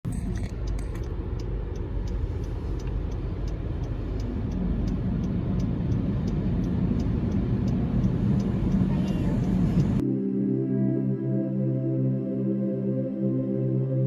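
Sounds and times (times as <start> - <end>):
car engine and road noise: 0.0 - 10.0
faint ticks: 0.2 - 10.0.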